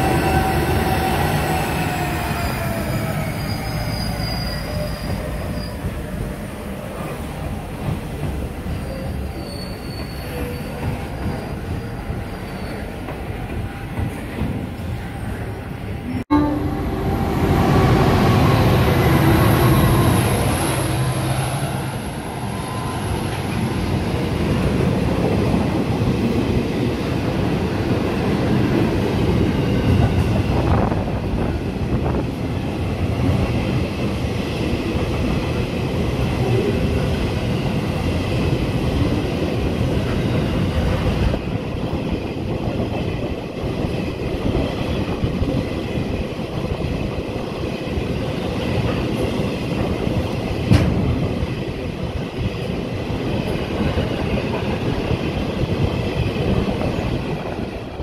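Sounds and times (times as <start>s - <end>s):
faint high squeal: 1.0s - 6.1s, 8.7s - 13.0s.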